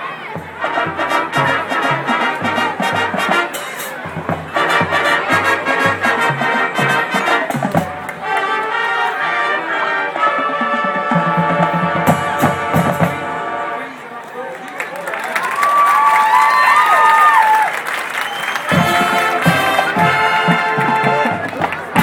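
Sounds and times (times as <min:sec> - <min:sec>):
marching band playing jazz: 0:00.0 - 0:14.0, 0:18.4 - 0:22.0.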